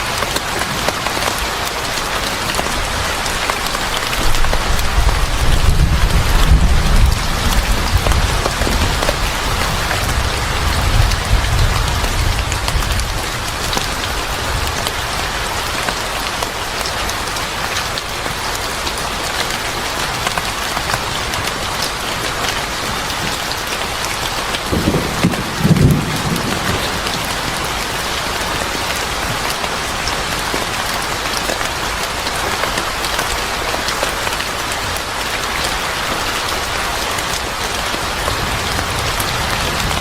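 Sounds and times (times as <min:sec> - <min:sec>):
steady rain falling: 0:00.0 - 0:40.0
low thunder rumble: 0:04.2 - 0:13.3, 0:24.6 - 0:28.5.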